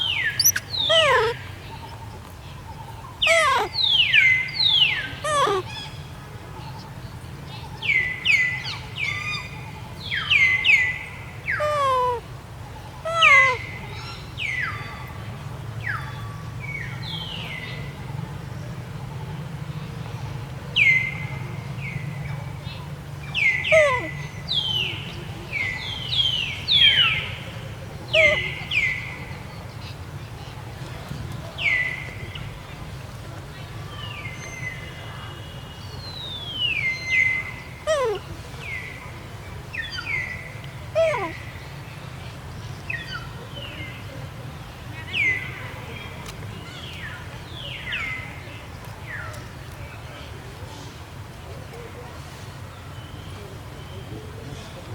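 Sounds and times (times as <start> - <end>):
high whistled animal calls: 0.0 - 1.4, 3.2 - 5.8
macaque squealing: 0.0 - 2.0, 3.2 - 3.9, 5.1 - 5.7, 11.6 - 12.2, 13.1 - 13.6, 23.7 - 24.1, 28.1 - 28.6, 37.9 - 38.2, 41.0 - 41.4.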